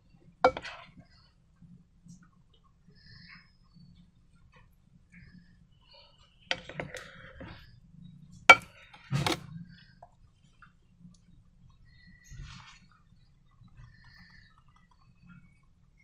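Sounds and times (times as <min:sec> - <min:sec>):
hard objects clicking and knocking: 0:00.4 - 0:01.0, 0:06.5 - 0:07.7, 0:08.3 - 0:10.2.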